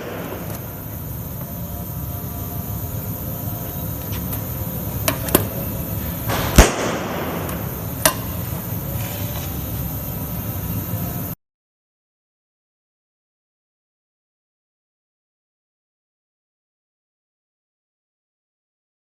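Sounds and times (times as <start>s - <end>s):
stud welder sharp crack: 0.0s - 10.2s
steady low hum: 0.0s - 11.4s.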